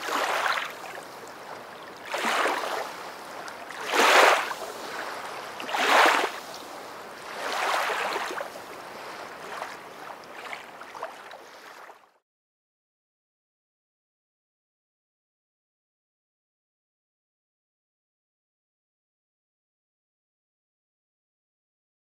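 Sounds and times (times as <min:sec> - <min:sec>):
water washing in surges: 0:00.0 - 0:12.1.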